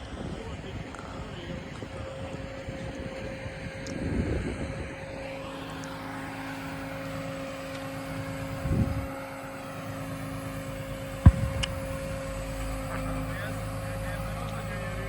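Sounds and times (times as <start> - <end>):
truck engine whine and hum: 0.9 - 15.0
sharp knock: 11.3 - 12.1
dull thump: 11.3 - 12.2.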